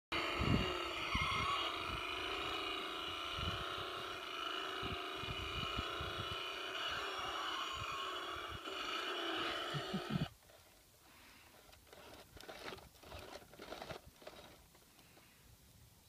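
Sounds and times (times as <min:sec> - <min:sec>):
steady motor drone: 0:00.1 - 0:10.3.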